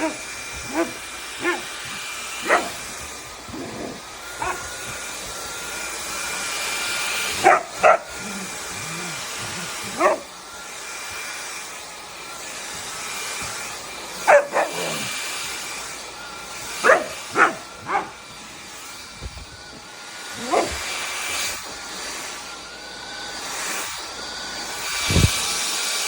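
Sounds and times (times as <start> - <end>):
dog barking: 0.0 - 2.9, 3.5 - 4.9, 7.4 - 10.3, 14.2 - 15.1, 16.8 - 18.2, 20.4 - 20.8
stick vacuum humming: 0.0 - 26.0.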